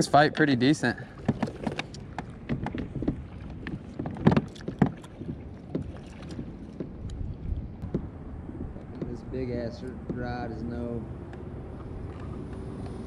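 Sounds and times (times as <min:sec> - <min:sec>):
water and wind noise: 0:00.0 - 0:13.0
gear knocking on plastic kayak: 0:01.2 - 0:07.2, 0:07.8 - 0:09.3, 0:10.0 - 0:10.3.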